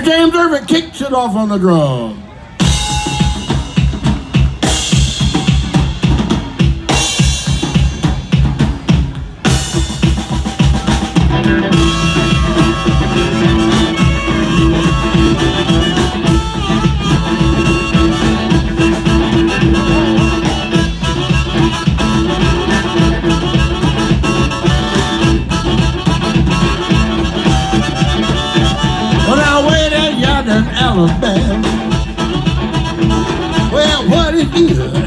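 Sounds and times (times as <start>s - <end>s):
blues band playing: 2.4s - 35.0s
harmonica melody: 10.8s - 35.0s.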